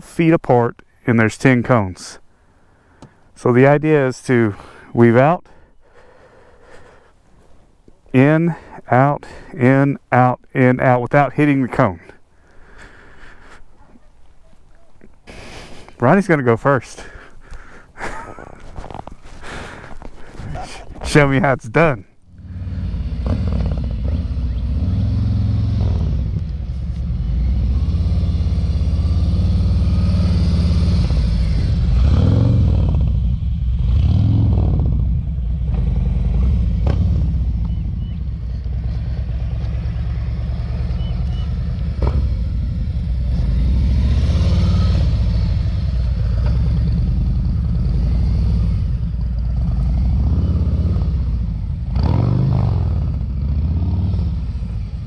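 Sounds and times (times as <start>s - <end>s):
motorcycle engine running: 22.2s - 55.0s.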